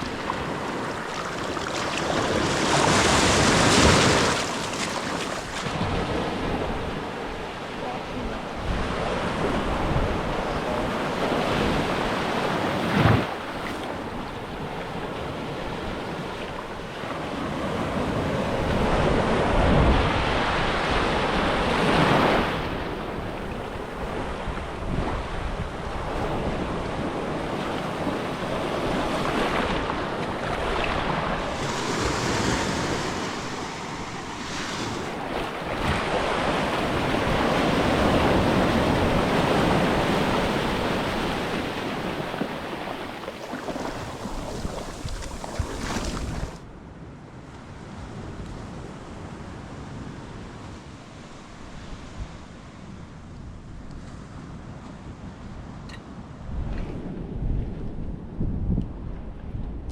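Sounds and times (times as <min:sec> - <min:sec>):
ocean surf on beach: 0:00.0 - 0:58.4
wind buffeting microphone: 0:17.4 - 0:46.7, 0:51.8 - 0:59.9.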